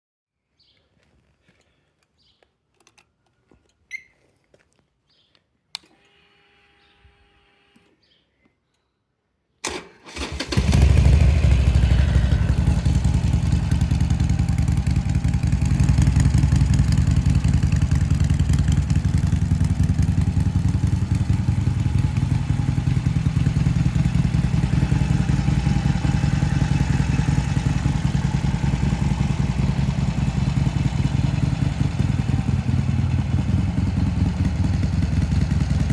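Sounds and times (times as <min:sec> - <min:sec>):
motorcycle engine running loudly: 0:10.5 - 0:35.9.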